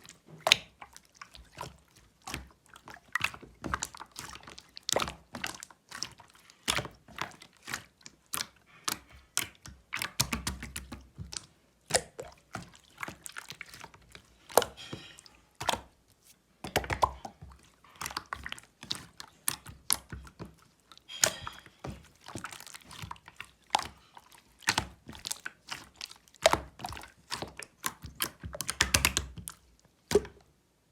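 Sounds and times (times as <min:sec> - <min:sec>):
slime squished by hand: 0:00.0 - 0:30.5.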